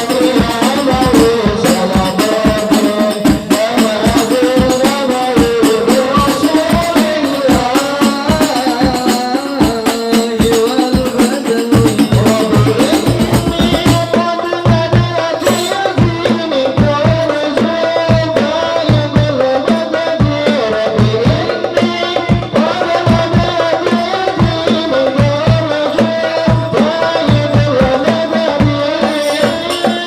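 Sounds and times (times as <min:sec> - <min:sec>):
fast hand-drum percussion: 0:00.0 - 0:30.0.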